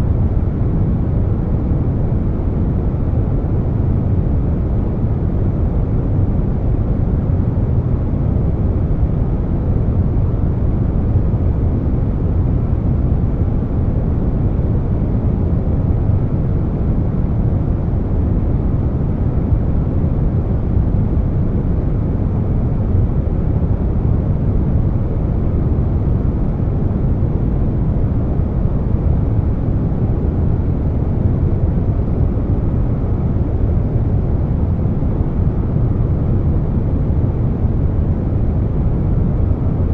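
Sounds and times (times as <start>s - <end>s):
air-conditioner noise: 0.0s - 39.9s.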